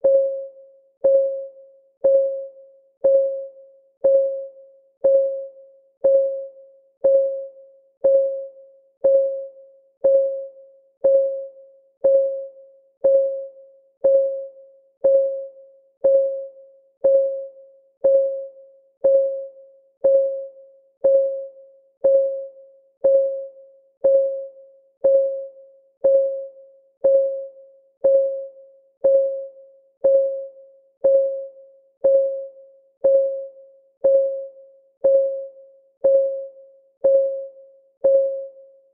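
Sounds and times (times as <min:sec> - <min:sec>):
countdown timer ticking: 0:03.0 - 0:04.4, 0:05.0 - 0:38.6.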